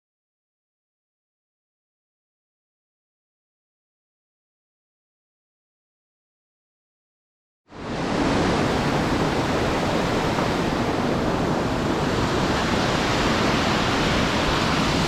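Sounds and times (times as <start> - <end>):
river water rushing over rapids: 7.8 - 15.0.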